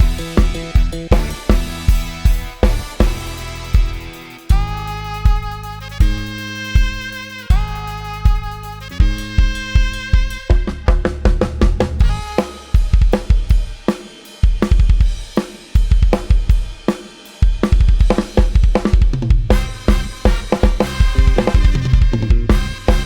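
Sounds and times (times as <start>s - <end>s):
low bass line: 0.0s - 12.4s, 19.4s - 23.0s
fast drum beat: 0.0s - 23.0s.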